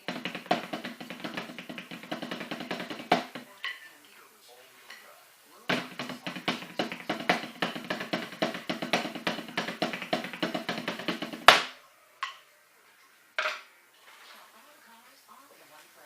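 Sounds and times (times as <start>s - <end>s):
snare drum roll: 0.0s - 3.6s, 5.7s - 11.8s.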